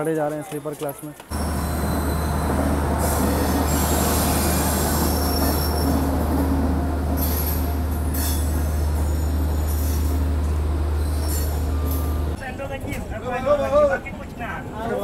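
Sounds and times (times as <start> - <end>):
wheel squeals: 1.3 - 6.2, 7.2 - 10.3, 10.9 - 12.4
train rolling past: 1.3 - 15.0.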